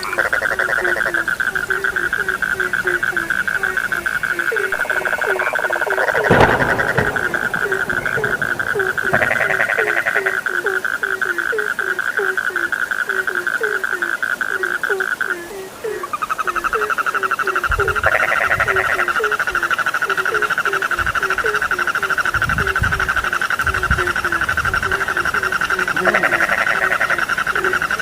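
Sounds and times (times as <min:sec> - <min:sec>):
frogs trilling: 0:00.0 - 0:28.0
low frog croaks: 0:00.0 - 0:28.0
low rumbling: 0:02.3 - 0:10.7.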